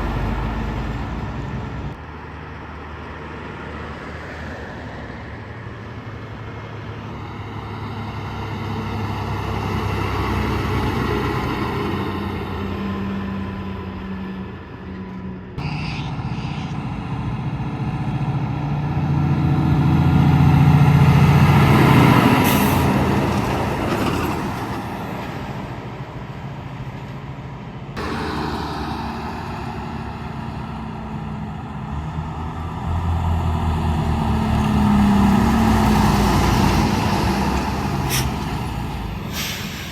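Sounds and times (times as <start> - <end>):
trucks driving past: 0.0 - 39.9
air brake hiss: 38.0 - 38.5, 39.2 - 39.9.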